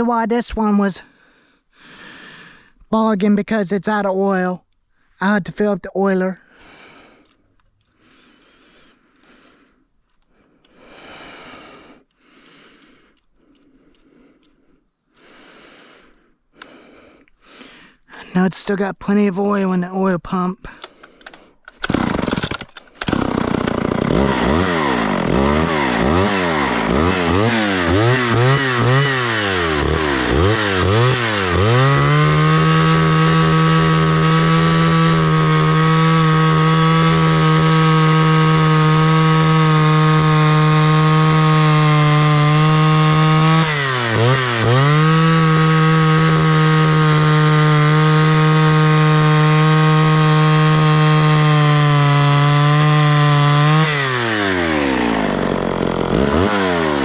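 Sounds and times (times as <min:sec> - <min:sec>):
chainsaw revving and cutting wood: 0:10.3 - 0:14.0, 0:15.2 - 0:17.2, 0:20.8 - 0:57.0.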